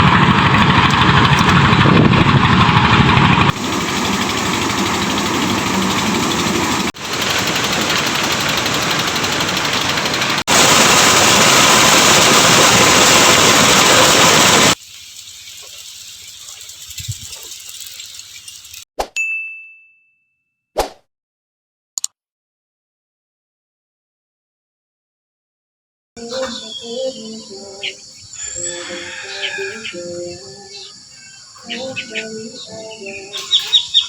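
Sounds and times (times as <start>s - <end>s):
engine-driven corn sheller running: 0.0s - 18.8s.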